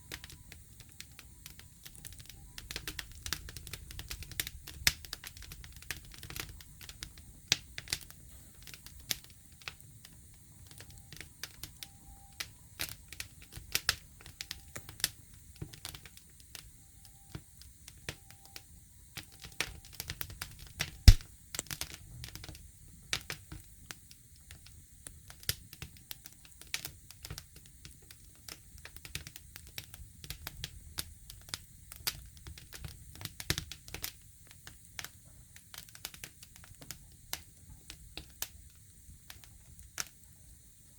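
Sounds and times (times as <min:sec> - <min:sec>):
campfire crackling: 0:00.0 - 0:40.9.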